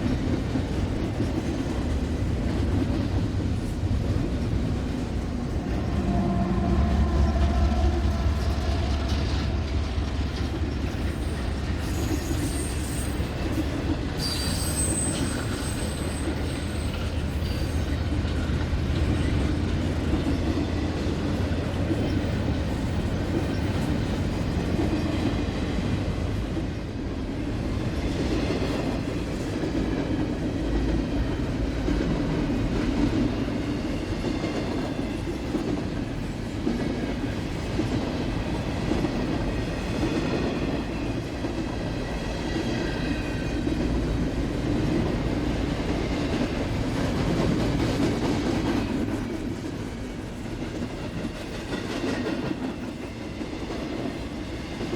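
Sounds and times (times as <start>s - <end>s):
railcar wheels rumbling on rails: 0.0s - 54.9s
wheel squeal: 11.0s - 13.4s, 14.2s - 18.0s.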